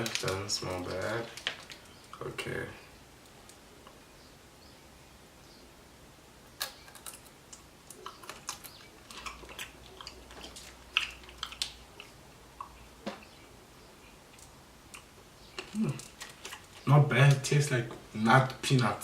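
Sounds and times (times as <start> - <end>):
seeds cracking and chewing: 0.0 - 2.4, 6.5 - 13.4, 14.0 - 18.8.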